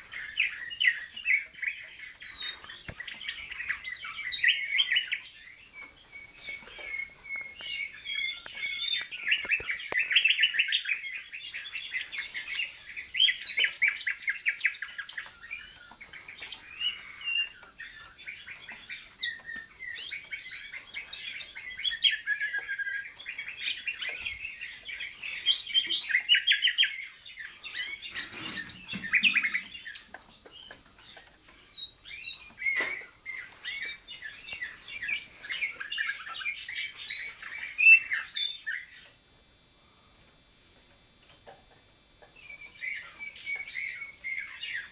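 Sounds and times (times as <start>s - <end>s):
nightingale singing: 0.0s - 39.2s, 42.2s - 44.9s
canaries singing: 0.0s - 44.9s.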